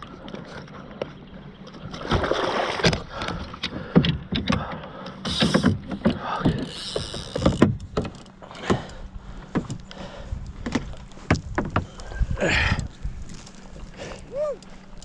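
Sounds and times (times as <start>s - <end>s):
gear knocking against kayak hull: 2.8s - 9.9s, 10.5s - 12.0s.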